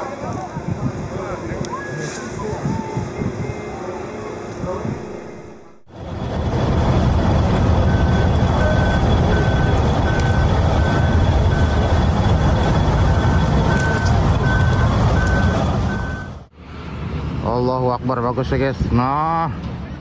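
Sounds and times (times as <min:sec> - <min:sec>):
vehicle engine rumbling: 0:04.5 - 0:17.6
electronic warning beeps: 0:06.2 - 0:16.5.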